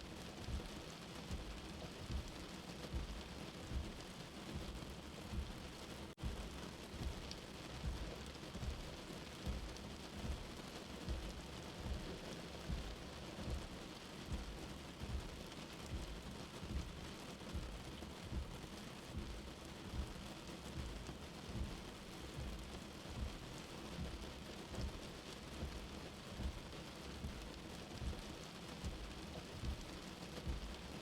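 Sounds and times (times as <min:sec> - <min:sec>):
rain hiss: 0:00.0 - 0:31.0
low heartbeat thump: 0:00.4 - 0:30.9.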